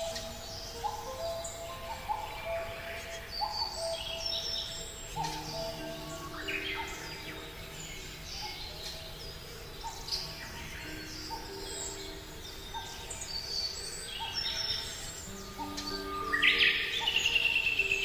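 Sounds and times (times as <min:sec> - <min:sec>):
birds chirping and singing: 0:00.0 - 0:18.0.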